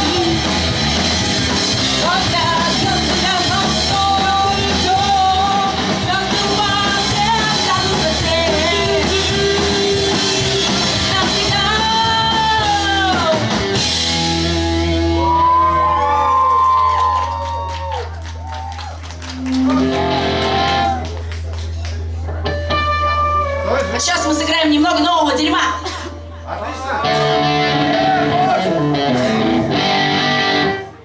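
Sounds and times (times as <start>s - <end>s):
person singing lead vocals: 0.0s - 0.7s, 1.8s - 13.6s
pop-punk band playing live: 0.0s - 15.9s, 19.3s - 21.2s, 27.0s - 31.0s
voices yelling: 26.5s - 30.8s
guitar chord ringing: 27.0s - 31.0s.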